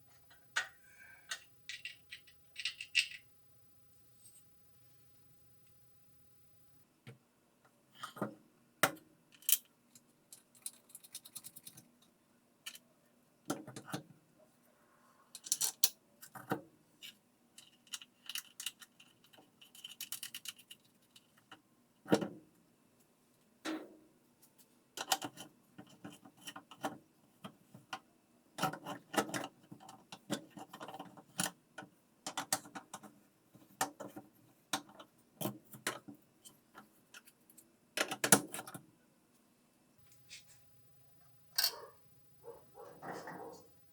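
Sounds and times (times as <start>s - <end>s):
metal parts clinking and knocking: 1.3s - 3.2s, 10.3s - 11.8s, 15.4s - 15.9s, 17.0s - 20.8s.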